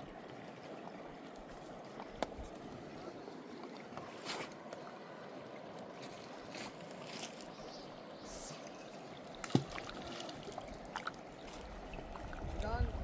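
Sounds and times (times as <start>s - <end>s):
river water flowing: 0.0s - 13.0s
small splashes: 8.5s - 12.3s.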